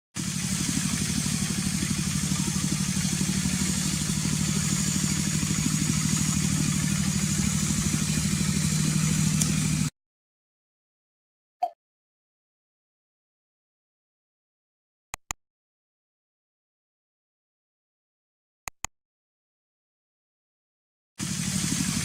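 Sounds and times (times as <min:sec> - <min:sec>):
engine idling: 0:00.2 - 0:09.9, 0:21.2 - 0:22.0.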